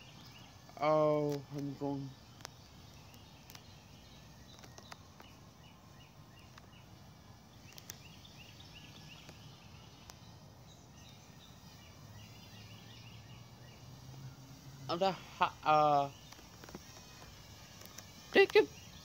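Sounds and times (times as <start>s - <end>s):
bird chirping: 0.0s - 19.0s
faint outdoor ambience: 0.0s - 19.0s
faint clicks: 4.5s - 5.3s, 7.6s - 8.1s.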